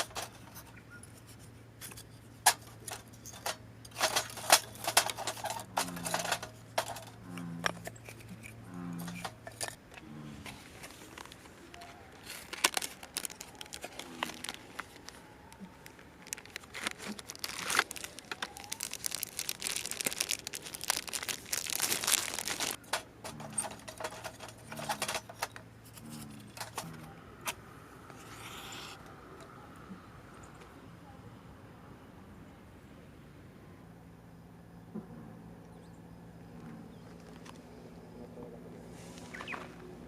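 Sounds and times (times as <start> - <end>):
rustling crinkling handling noise: 0.0 - 27.0.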